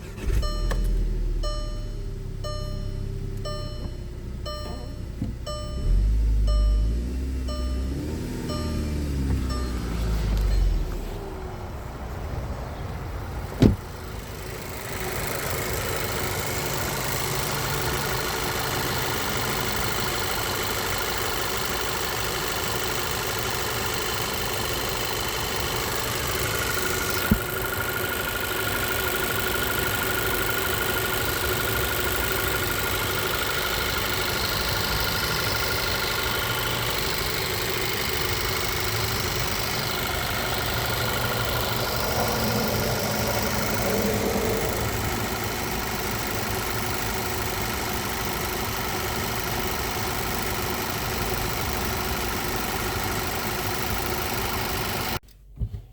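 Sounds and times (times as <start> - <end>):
car engine idling: 0.0 - 55.5
sharp thump: 13.6 - 13.9.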